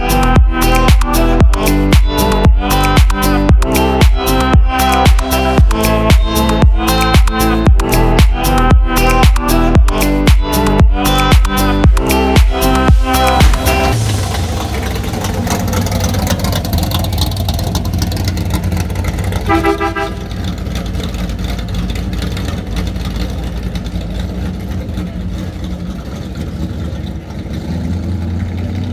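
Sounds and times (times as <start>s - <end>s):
car engine running: 0.0s - 28.9s
car horn toot: 19.4s - 20.5s.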